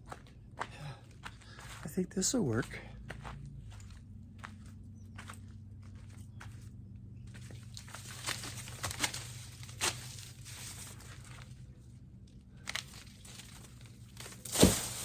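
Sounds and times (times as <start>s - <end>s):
dry leaves crinkling: 7.3s - 15.0s
corn stalks cracking: 7.5s - 11.6s, 12.5s - 15.0s.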